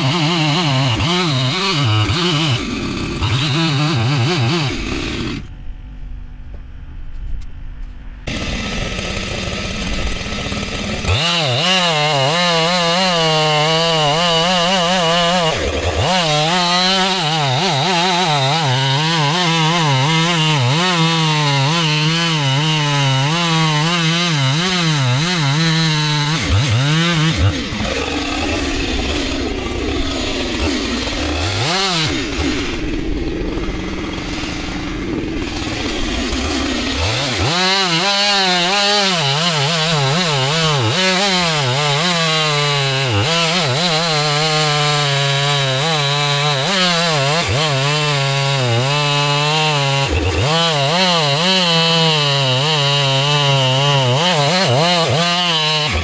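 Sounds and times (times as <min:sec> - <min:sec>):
chainsaw cutting wood: 0:00.0 - 0:05.5, 0:08.3 - 0:56.0.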